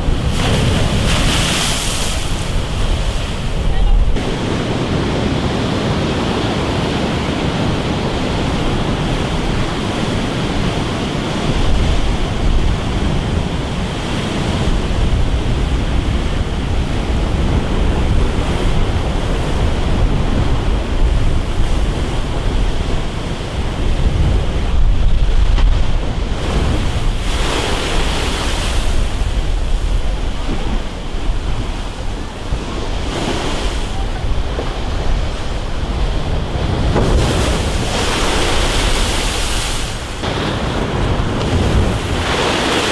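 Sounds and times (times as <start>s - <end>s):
sea waves crashing: 0.0s - 42.9s
wind buffeting microphone: 0.0s - 42.9s.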